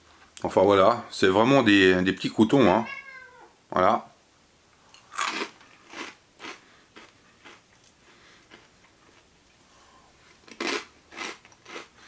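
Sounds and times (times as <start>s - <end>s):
person chewing crunchy croutons: 5.0s - 9.3s, 10.2s - 12.0s.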